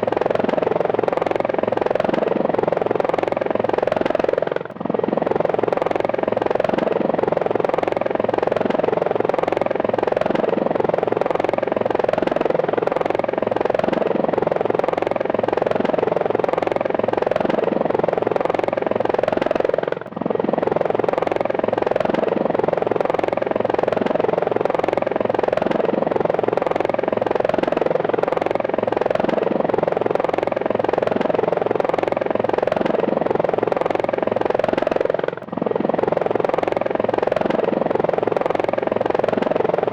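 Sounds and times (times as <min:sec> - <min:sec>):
helicopter engine whine: 0:00.0 - 0:39.9
helicopter rotor blades beating: 0:00.0 - 0:39.9.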